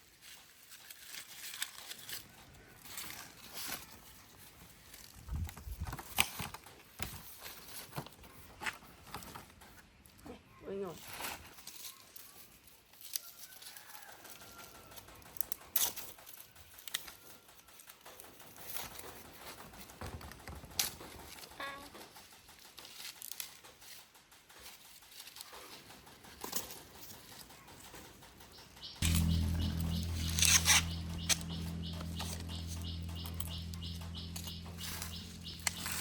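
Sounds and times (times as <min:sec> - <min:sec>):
rustling and handling noises: 0:00.0 - 0:17.1
sharp clicks and knocks: 0:15.0 - 0:36.0.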